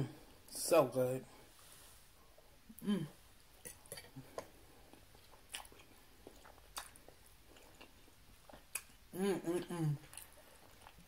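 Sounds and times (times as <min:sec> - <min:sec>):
faint chewing: 0:03.6 - 0:11.0.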